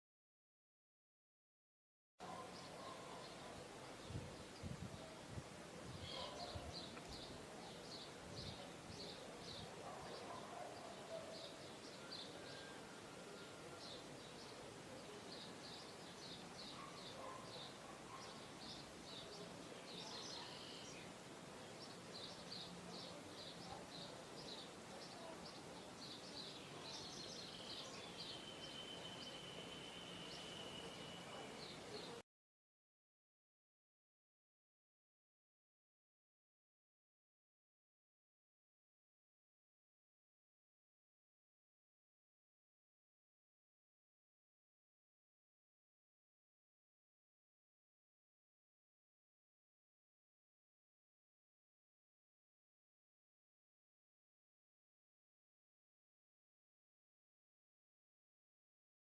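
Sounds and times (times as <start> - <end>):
small birds chirping: 2.2 - 32.2.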